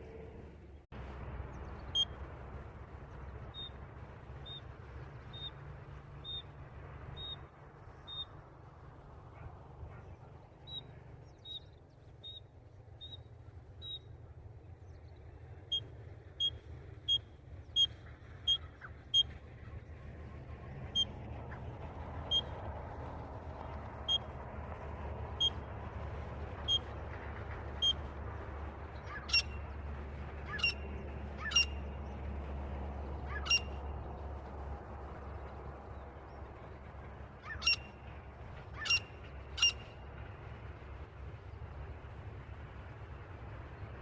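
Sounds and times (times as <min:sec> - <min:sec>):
low hum: 0:00.0 - 0:44.0
francolin calling: 0:29.0 - 0:29.7, 0:30.5 - 0:32.0, 0:33.2 - 0:33.8, 0:37.4 - 0:38.0, 0:38.7 - 0:40.0.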